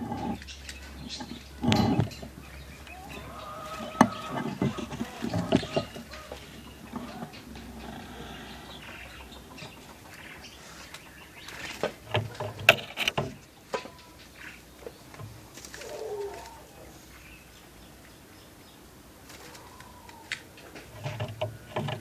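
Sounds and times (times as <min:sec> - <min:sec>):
sharp clicks and knocks: 0:00.0 - 0:02.4, 0:03.9 - 0:07.8, 0:11.6 - 0:14.1, 0:20.3 - 0:22.0
canary chirps and calls: 0:00.0 - 0:12.3.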